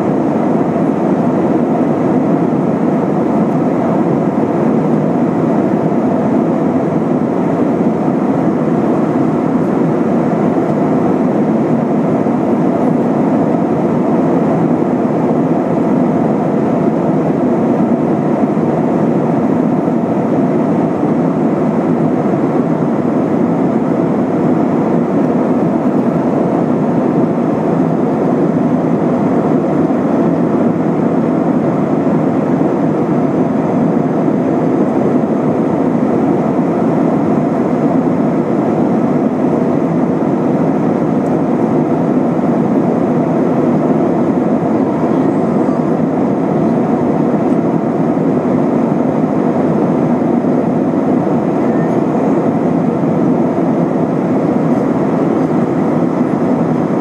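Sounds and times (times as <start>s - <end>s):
aircraft cabin engine rumble: 0.0s - 57.0s.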